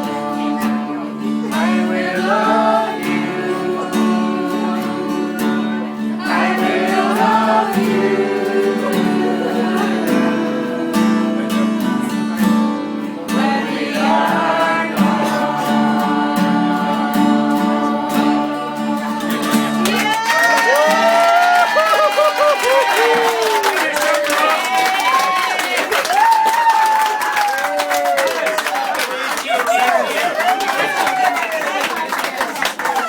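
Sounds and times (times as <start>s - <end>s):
person singing: 0.0s - 23.1s
guitar accompaniment: 0.0s - 23.4s.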